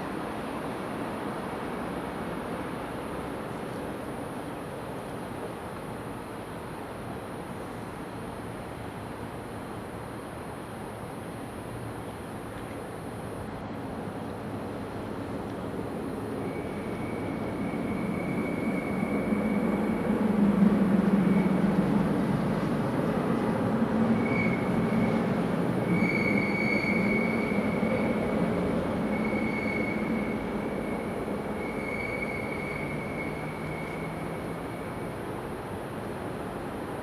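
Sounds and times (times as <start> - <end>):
high thin squeal: 25.8 - 28.0, 29.1 - 34.3.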